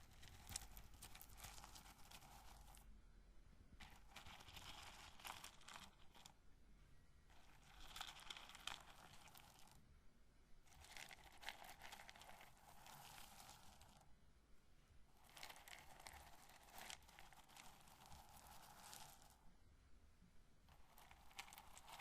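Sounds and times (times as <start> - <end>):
corn kernels crackling rubbed: 0.0 - 2.9, 3.8 - 6.3, 7.3 - 9.8, 10.7 - 14.0, 15.2 - 19.4, 20.7 - 22.0.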